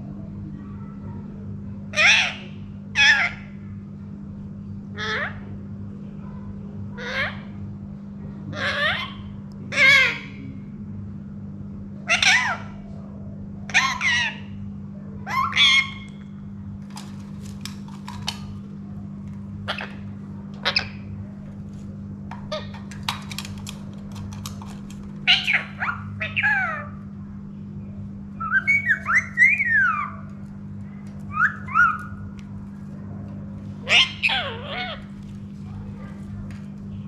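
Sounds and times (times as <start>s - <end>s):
parrot squawks and whistles: 28.4s - 30.2s, 31.3s - 32.1s.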